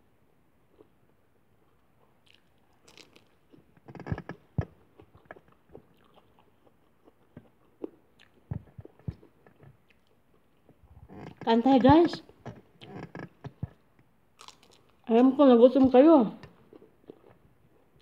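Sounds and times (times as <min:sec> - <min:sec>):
lettuce crunching when bitten: 0:02.2 - 0:04.4, 0:14.4 - 0:15.1.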